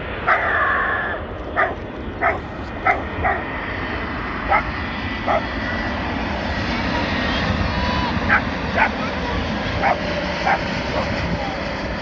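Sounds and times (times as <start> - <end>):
steady background rumble: 0.0 - 12.0
small dog yapping: 0.3 - 0.9, 1.6 - 3.5, 4.5 - 5.6, 7.8 - 11.4.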